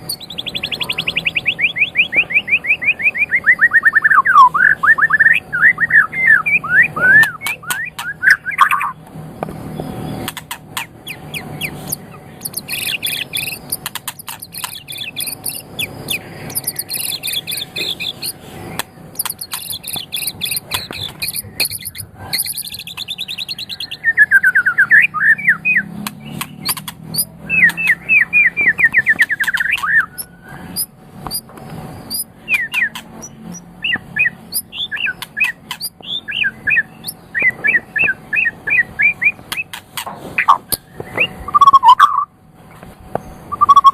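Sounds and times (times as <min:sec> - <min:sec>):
bird singing varied song: 0:00.0 - 0:43.9.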